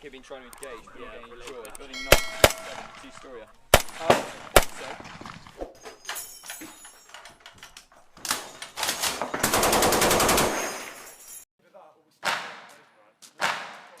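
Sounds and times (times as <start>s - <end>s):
gunshots: 1.6s - 5.7s, 9.0s - 10.8s, 12.2s - 14.0s
automatic gunfire burst: 3.7s - 5.6s, 9.4s - 10.8s.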